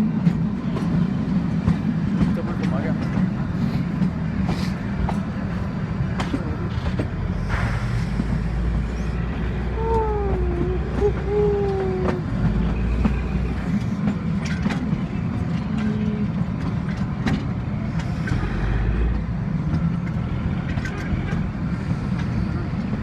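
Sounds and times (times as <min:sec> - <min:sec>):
moving vehicle rumble: 0:00.0 - 0:23.0.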